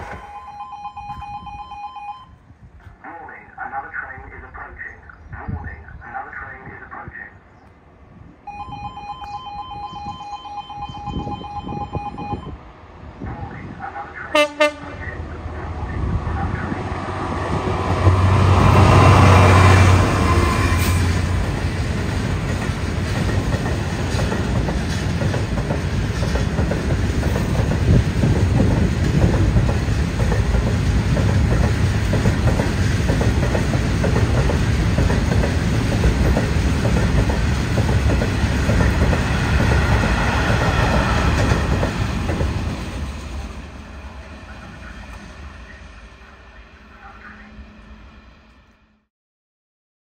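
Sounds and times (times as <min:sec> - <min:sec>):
train wheels clattering on rails: 0:17.7 - 0:43.6.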